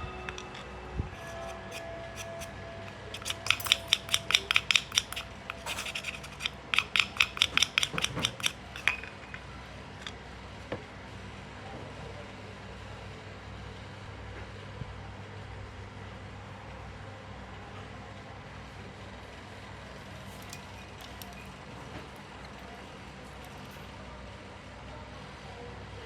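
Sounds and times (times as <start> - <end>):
clock movement metallic clicks: 1.2 - 9.2.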